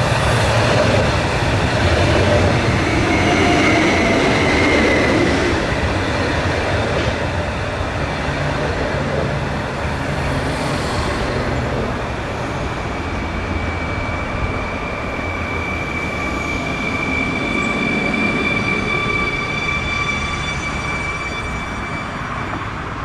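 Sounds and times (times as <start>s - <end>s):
train rumbling: 0.0s - 23.0s
high steady whine: 9.1s - 14.4s.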